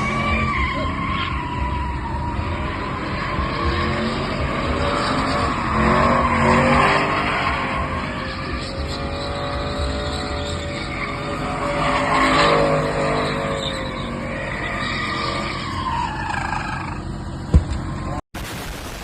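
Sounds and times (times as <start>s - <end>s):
car engine revving: 0.0s - 18.2s
tires skidding and squealing: 0.0s - 18.2s
sharp crack: 17.5s - 19.0s.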